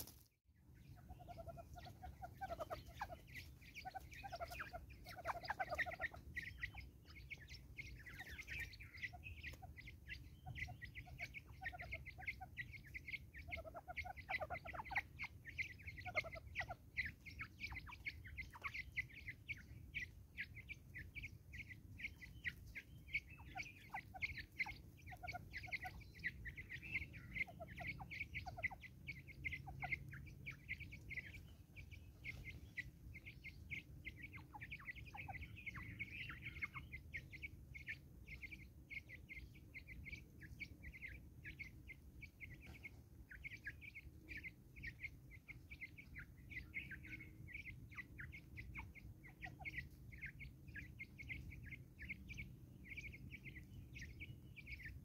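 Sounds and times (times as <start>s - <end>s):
birds chirping: 0.0s - 55.0s
soft low bird calls: 0.0s - 55.0s.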